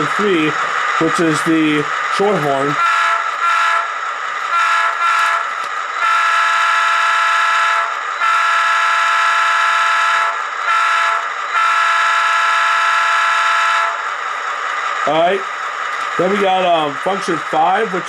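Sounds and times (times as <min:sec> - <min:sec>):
model train horn blasts: 0:02.2 - 0:14.1.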